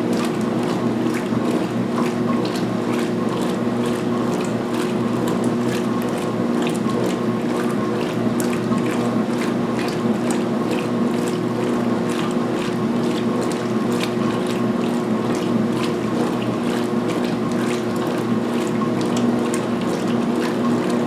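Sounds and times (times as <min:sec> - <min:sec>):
washing machine motor hum: 0:00.0 - 0:21.0.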